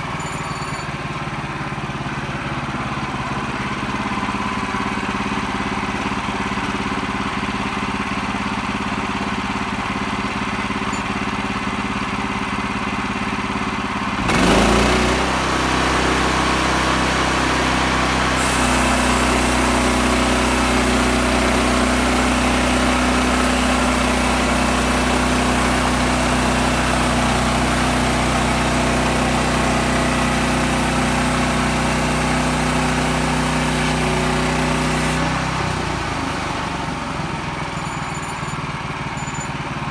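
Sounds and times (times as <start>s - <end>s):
sawmill engine running: 0.0s - 39.9s
saw blade cutting log: 18.3s - 24.3s, 31.7s - 35.8s.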